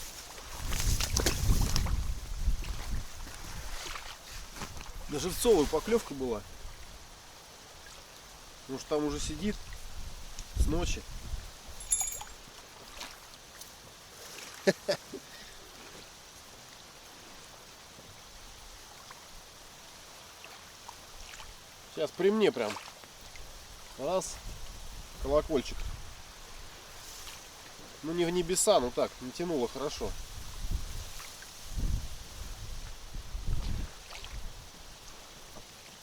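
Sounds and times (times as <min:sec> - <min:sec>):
choppy water around boat: 0:00.0 - 0:10.9, 0:11.8 - 0:36.0
wind: 0:00.0 - 0:36.0
wind buffeting microphone: 0:00.6 - 0:03.8, 0:30.1 - 0:34.8.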